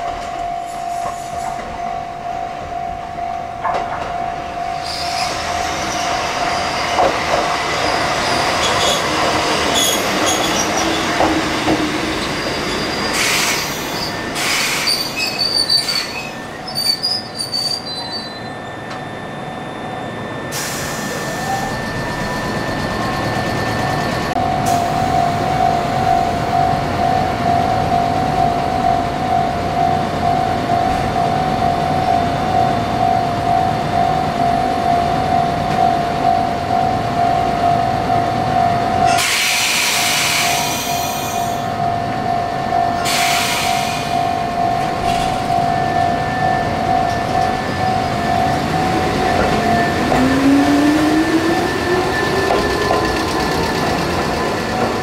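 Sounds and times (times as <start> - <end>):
train high squeal: 0.1 - 1.8, 4.5 - 26.4, 39.0 - 42.2, 42.8 - 55.0
pulsing ringing tone: 16.2 - 39.2, 40.8 - 55.0
train motor whine: 43.0 - 55.0.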